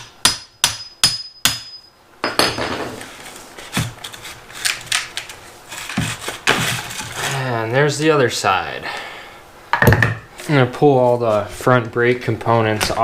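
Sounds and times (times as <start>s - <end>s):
hammer strikes on metal: 0.0s - 2.8s
metal parts scraping and clanking: 4.0s - 7.5s.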